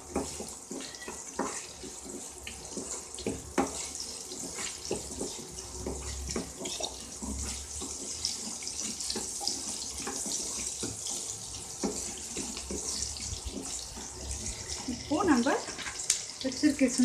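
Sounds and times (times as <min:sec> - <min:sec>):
knocks and scrapes from stirring: 0:00.0 - 0:16.1
shallots sizzling in oil: 0:00.0 - 0:17.0.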